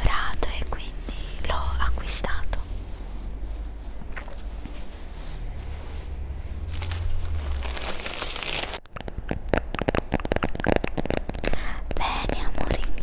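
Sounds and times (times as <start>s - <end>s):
packaging rustling and crinkling: 0.0s - 8.9s.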